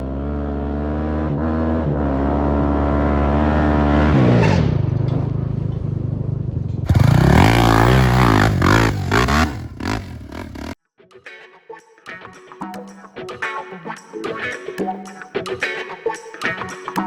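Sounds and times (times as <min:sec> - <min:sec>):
quad engine revving: 0:00.0 - 0:05.6, 0:06.9 - 0:10.8.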